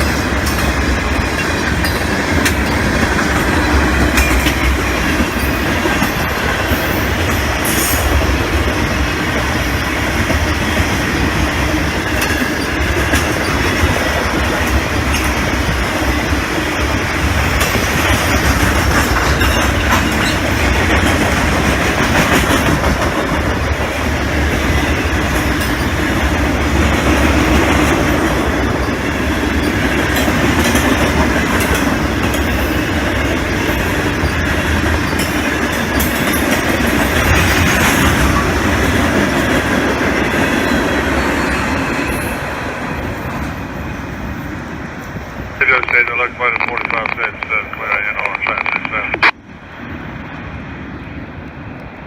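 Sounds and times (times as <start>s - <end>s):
wheels clacking over rail joints: 0.0s - 8.7s, 17.2s - 42.5s
freight train wheels rumbling: 0.0s - 52.0s.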